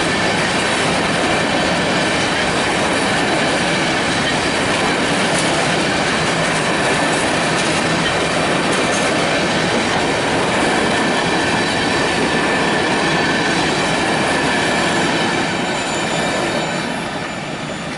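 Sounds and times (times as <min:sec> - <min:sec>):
train wheels clattering over joints: 0:00.0 - 0:17.7
wheel squeal: 0:12.5 - 0:17.9.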